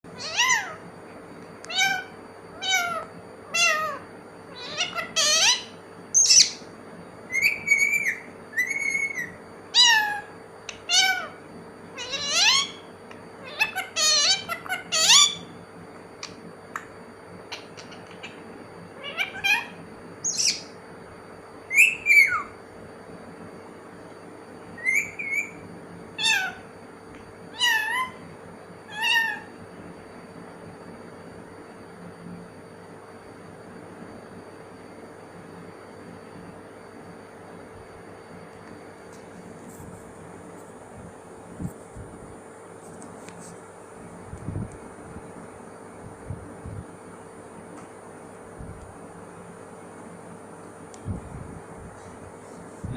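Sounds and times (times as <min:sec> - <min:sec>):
parrot calling: 0:00.1 - 0:00.8, 0:01.7 - 0:06.7, 0:07.3 - 0:11.4, 0:12.0 - 0:15.5, 0:17.5 - 0:20.8, 0:21.7 - 0:22.6, 0:24.8 - 0:25.6, 0:26.2 - 0:26.7, 0:27.5 - 0:28.3, 0:28.9 - 0:29.6.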